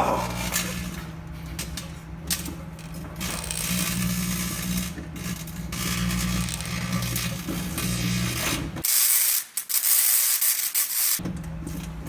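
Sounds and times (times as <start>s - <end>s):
microwave oven humming: 0.0s - 8.8s, 11.2s - 12.0s
light bulb crackling and hissing: 3.2s - 11.2s.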